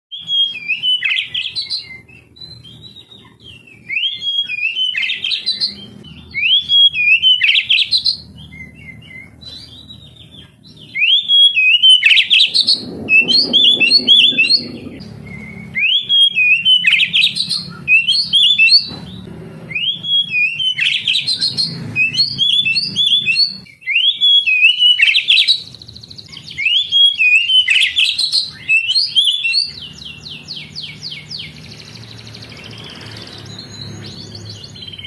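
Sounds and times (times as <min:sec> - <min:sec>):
bird singing whistles and trills: 0:00.1 - 0:35.0.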